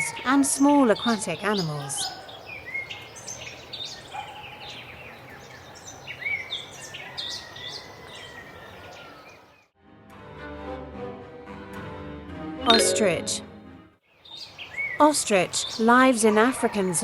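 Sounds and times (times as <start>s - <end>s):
birds chirping and whistling: 0.0s - 9.6s, 14.1s - 15.0s.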